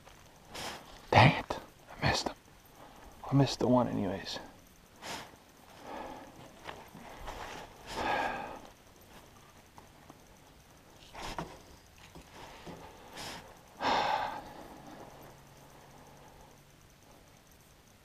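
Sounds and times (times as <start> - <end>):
man sighing heavily: 7.9 - 8.7, 13.8 - 14.8.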